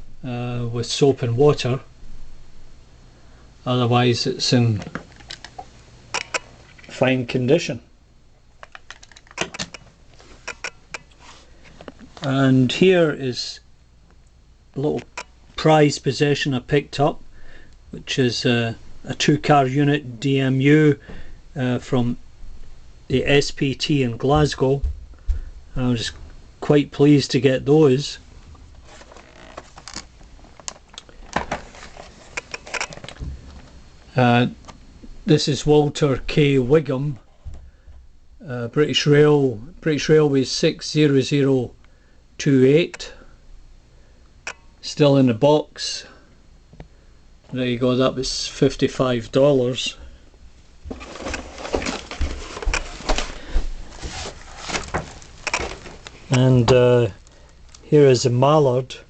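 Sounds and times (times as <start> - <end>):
model trains being handled: 8.6 - 12.3, 50.9 - 53.3
soft rustling: 50.6 - 57.7.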